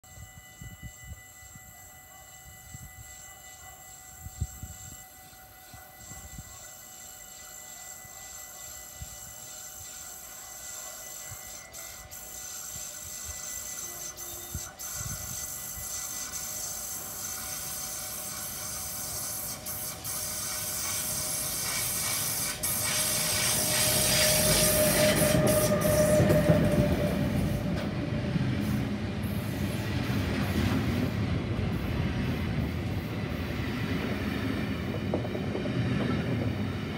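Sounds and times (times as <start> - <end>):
freight train rumbling past: 4.3 - 36.9
wheel squeal: 6.0 - 27.8.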